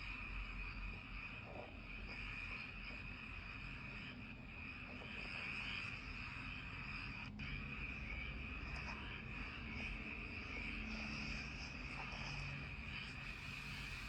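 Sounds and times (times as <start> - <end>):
crickets chirping: 0.0 - 14.0
frogs croaking: 0.0 - 14.0.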